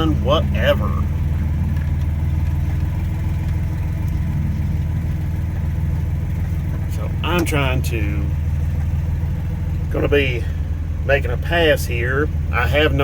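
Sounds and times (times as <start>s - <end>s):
pickup engine idling: 0.0s - 13.0s.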